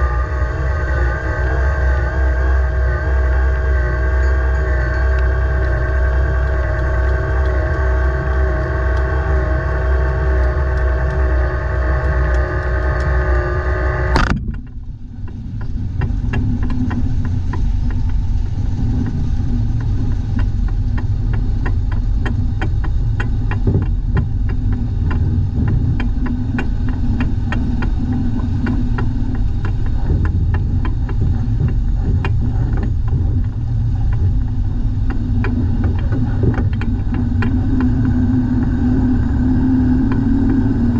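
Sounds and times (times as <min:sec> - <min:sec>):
dump truck engine running: 0:00.0 - 0:40.9
engine whining hum: 0:00.0 - 0:40.9
fast clatter of ticks: 0:18.9 - 0:39.0.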